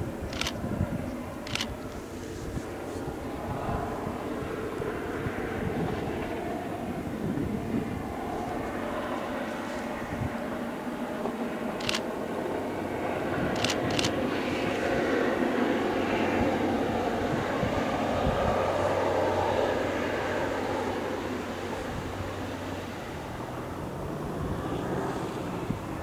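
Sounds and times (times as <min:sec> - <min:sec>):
locomotive engine hum: 0:00.0 - 0:26.0
sharp clicks: 0:00.3 - 0:00.6, 0:01.5 - 0:01.8, 0:11.8 - 0:12.1, 0:13.5 - 0:14.2.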